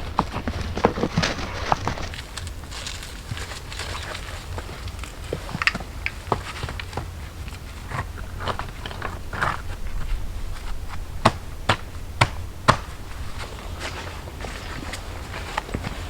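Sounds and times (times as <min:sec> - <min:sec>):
crunching and small clicks: 0:00.2 - 0:10.1
sharp knocks: 0:11.2 - 0:13.0.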